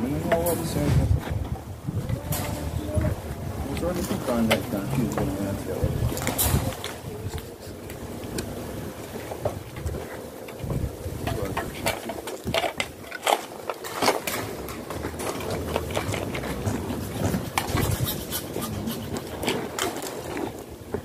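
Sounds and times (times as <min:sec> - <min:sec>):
tools clicking and scraping: 0:11.3 - 0:20.6.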